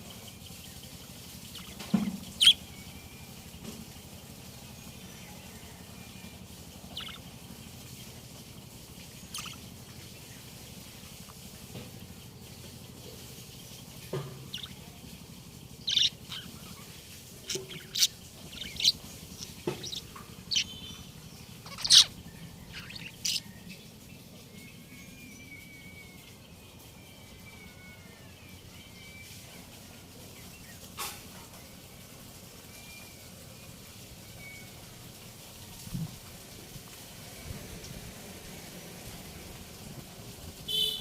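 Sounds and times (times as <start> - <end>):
budgerigars warbling chatter: 1.2 - 2.9, 6.8 - 7.4, 9.2 - 10.0, 14.1 - 15.1, 15.7 - 23.8
budgerigars chirping: 1.4 - 2.8, 6.9 - 7.2, 9.3 - 9.6, 14.5 - 14.9, 15.8 - 23.5.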